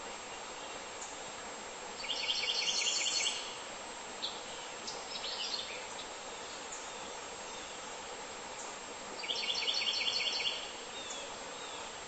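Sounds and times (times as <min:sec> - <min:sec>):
steady outdoor hiss: 0:00.0 - 0:12.0
songbird singing and chirping: 0:02.0 - 0:03.6, 0:04.2 - 0:12.0.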